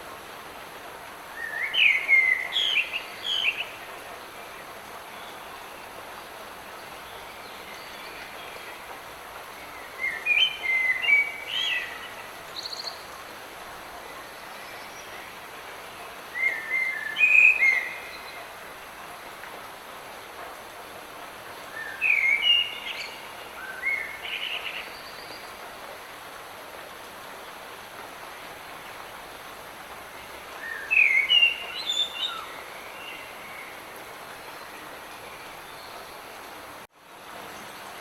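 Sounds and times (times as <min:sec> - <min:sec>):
light rain hissing: 0:00.0 - 0:38.0
songbird singing: 0:01.3 - 0:19.0, 0:21.6 - 0:26.3, 0:30.0 - 0:36.8.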